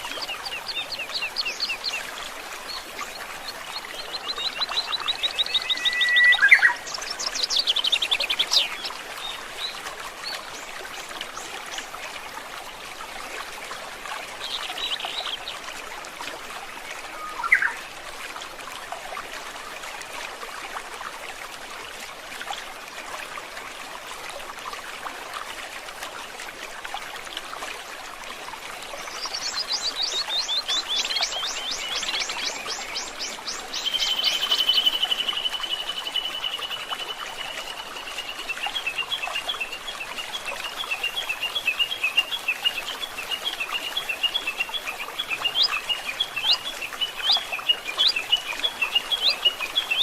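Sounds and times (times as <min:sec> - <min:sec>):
songbirds singing: 0:00.0 - 0:10.7, 0:28.9 - 0:50.0
forest stream trickling: 0:00.0 - 0:50.0.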